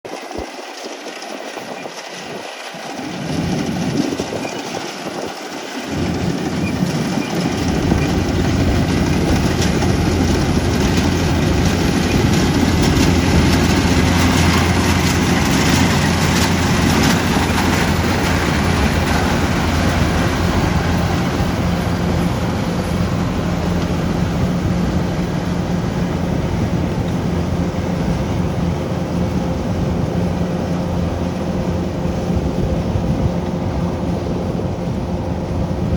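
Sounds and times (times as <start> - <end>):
combine harvester running: 0.1 - 35.9
machinery rattle: 0.2 - 29.4.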